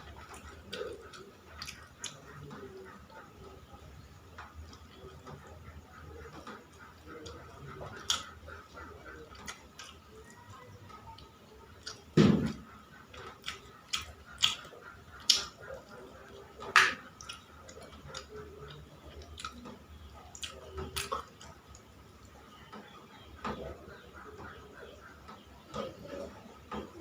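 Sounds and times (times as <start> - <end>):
person chewing: 0.1 - 3.0, 4.4 - 10.3, 11.7 - 21.8.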